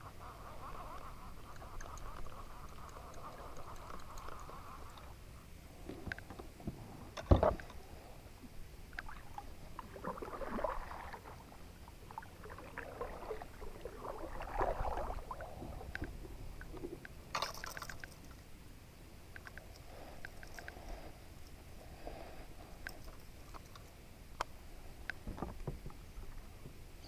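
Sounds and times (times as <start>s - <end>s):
water sloshing against a kayak: 8.5s - 18.5s.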